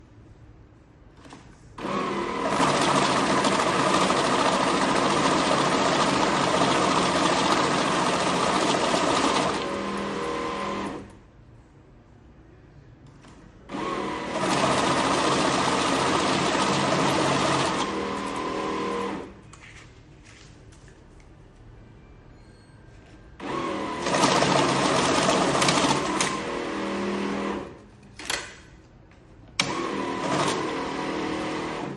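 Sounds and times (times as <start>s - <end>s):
banknote counting machine whirring: 1.8s - 11.1s, 13.7s - 19.3s, 23.4s - 27.6s, 29.6s - 31.9s.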